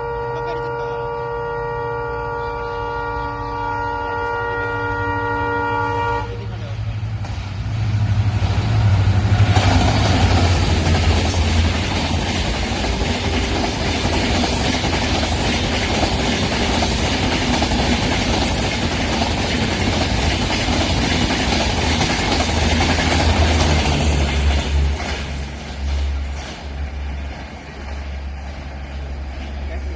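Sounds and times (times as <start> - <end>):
train wheels rumbling on rails: 2.7 - 29.9
train clickety-clack: 6.3 - 29.9.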